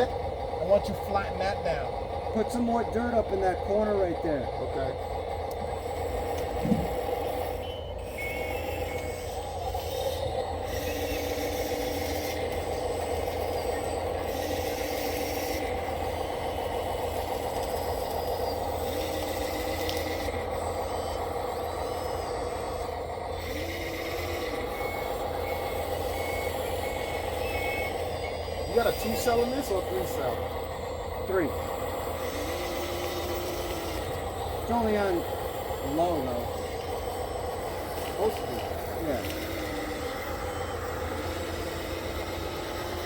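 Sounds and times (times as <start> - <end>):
electric motors whining: 0.0 - 43.0
reversing beeper: 6.3 - 16.8, 18.2 - 30.4.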